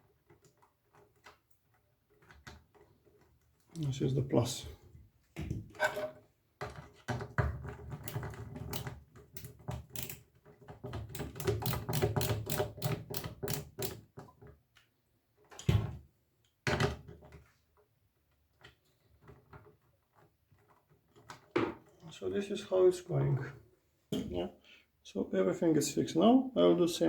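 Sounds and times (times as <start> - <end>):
clicks and rattles of hand tools: 5.8 - 14.6.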